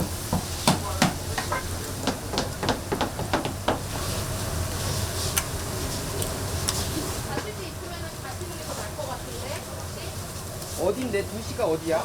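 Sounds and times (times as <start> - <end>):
oil sizzling while deep-frying: 0.0 - 12.0.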